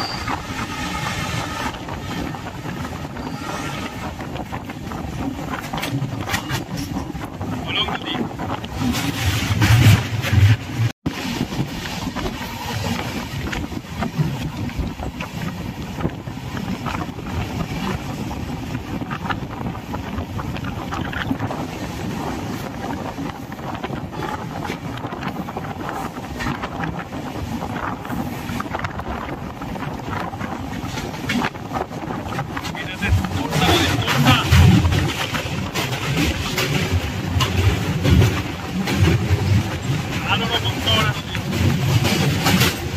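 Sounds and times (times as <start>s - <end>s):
train rumbling on track: 0.0s - 42.9s
wind buffeting microphone: 0.0s - 42.9s.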